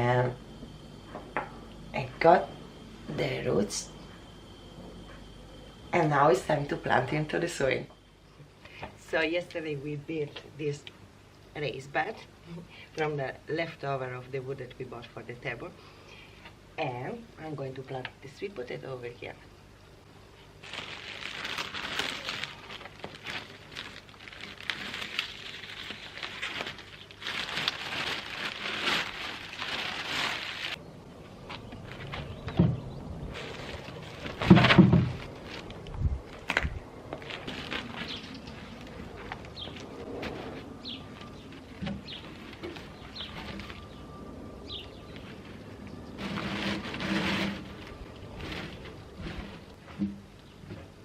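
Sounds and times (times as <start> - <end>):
rustling scrape: 20.6 - 30.8, 33.3 - 35.8, 37.2 - 44.0, 45.2 - 50.0
small crunchy clicks: 35.3 - 40.0
small bird chirping: 38.0 - 38.8, 40.8 - 46.2
soil being dug and scooped: 45.3 - 49.8.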